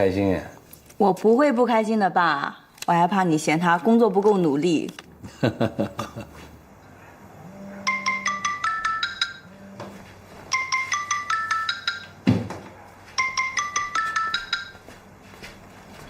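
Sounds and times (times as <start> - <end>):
marimba phone ringtone: 7.9 - 9.8, 10.5 - 12.2, 13.2 - 15.0.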